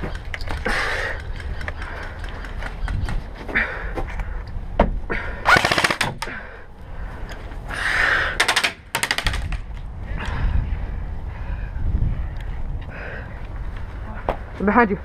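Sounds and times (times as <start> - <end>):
airsoft guns firing rapid bursts: 5.5 - 6.1.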